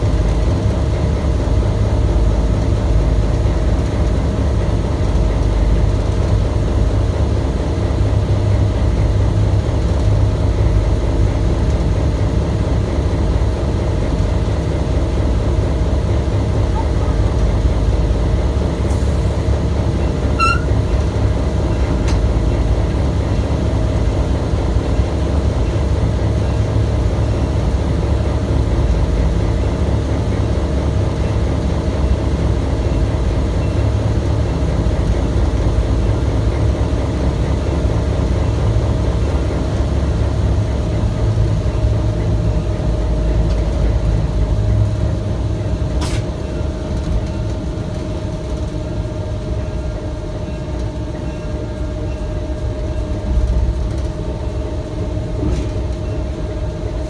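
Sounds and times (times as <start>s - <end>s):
train wheels rumbling on rails: 0.0s - 57.0s
short high squeak: 20.4s - 20.8s.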